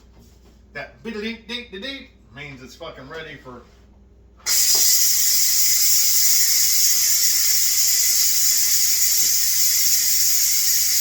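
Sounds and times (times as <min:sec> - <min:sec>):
pressure cooker steam hissing: 0:04.5 - 0:11.0.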